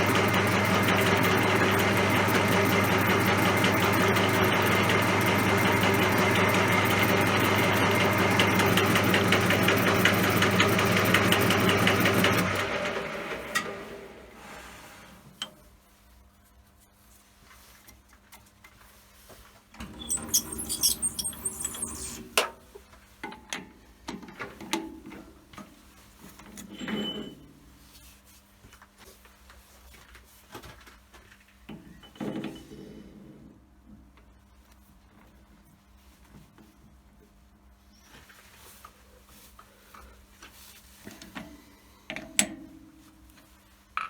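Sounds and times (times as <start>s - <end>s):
metal tools clattering: 20.0s - 22.2s.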